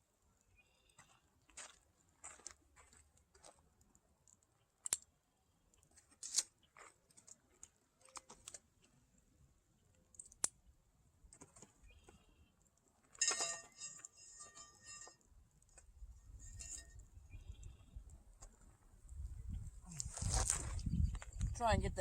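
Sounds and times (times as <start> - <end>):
clattering clink: 13.1 - 15.2, 16.4 - 17.0.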